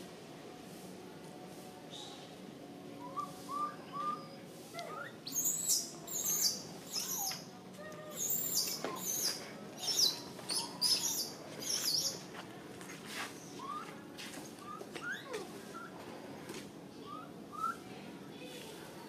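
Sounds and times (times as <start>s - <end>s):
birds chirping: 3.0s - 7.4s, 8.1s - 12.3s.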